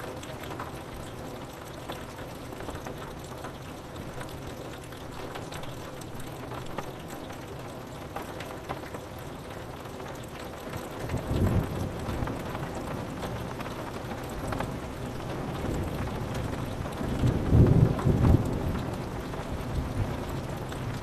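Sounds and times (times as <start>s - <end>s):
rain on window glass: 0.0s - 21.0s
low rumble of thunder: 11.0s - 21.0s.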